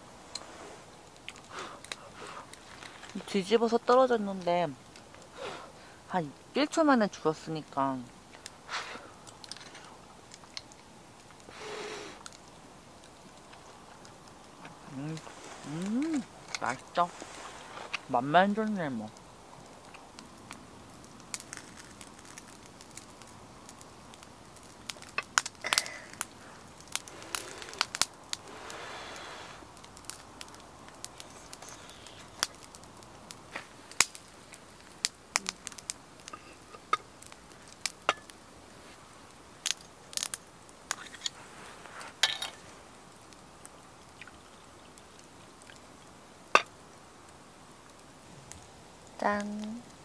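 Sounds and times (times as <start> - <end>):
wood fire crackling and popping: 0.0 - 50.0
person speaking: 14.7 - 17.3.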